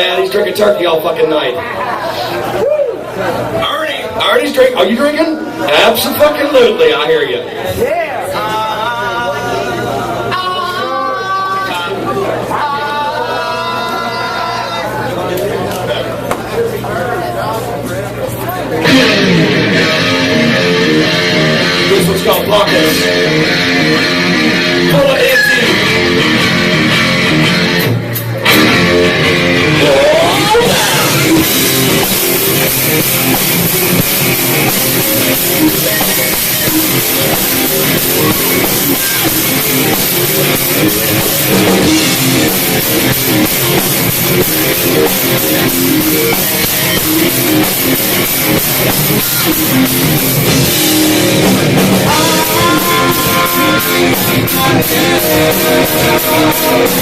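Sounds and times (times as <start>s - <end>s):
electric guitars: 18.7s - 57.0s
drum kit: 18.8s - 57.0s.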